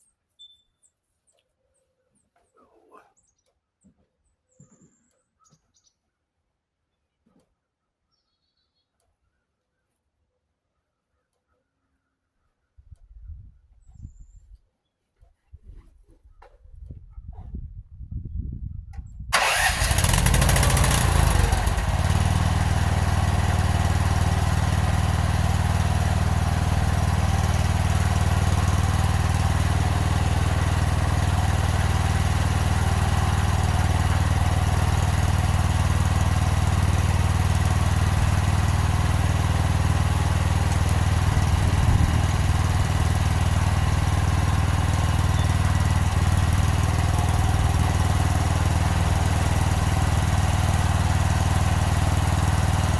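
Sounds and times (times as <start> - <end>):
engine starting and running: 19.3 - 52.9.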